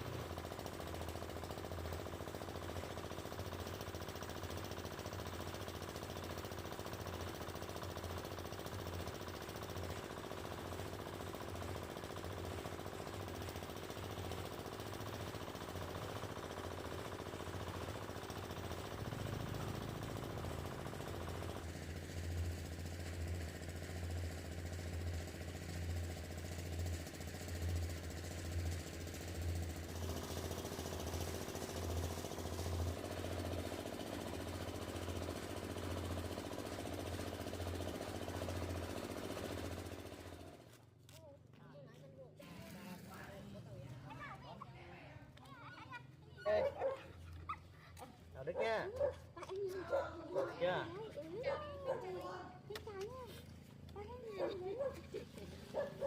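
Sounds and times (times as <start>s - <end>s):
small engine throbbing: 0.0s - 40.8s.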